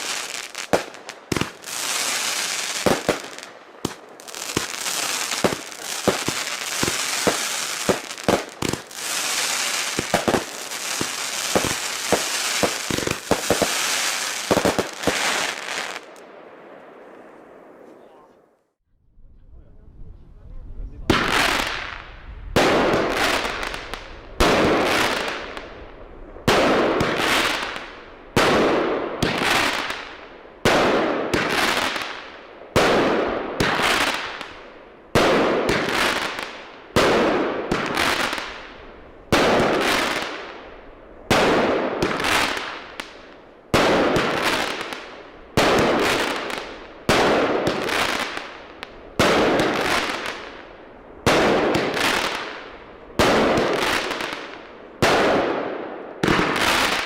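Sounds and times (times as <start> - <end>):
fireworks banging: 0.0 - 16.2, 41.3 - 50.6, 51.2 - 57.0.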